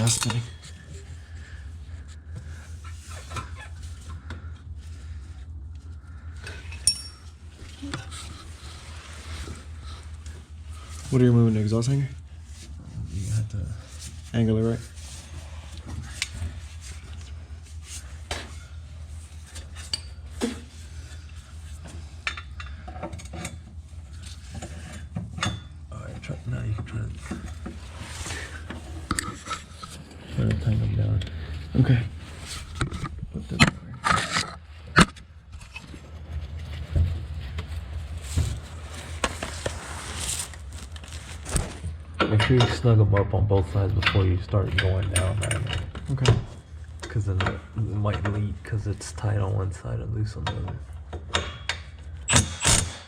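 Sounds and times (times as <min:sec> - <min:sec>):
metallic clinks of exhaust and tools: 0:00.0 - 0:01.1, 0:06.4 - 0:07.5, 0:50.4 - 0:53.0
low steady hum: 0:00.0 - 0:53.0
hand tools clinking on metal: 0:06.7 - 0:07.3.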